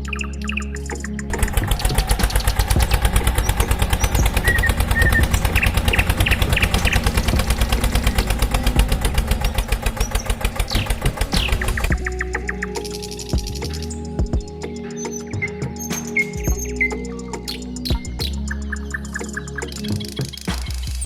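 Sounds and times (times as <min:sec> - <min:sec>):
birds chirping: 0:00.0 - 0:21.0
tractor engine idling: 0:00.2 - 0:14.8.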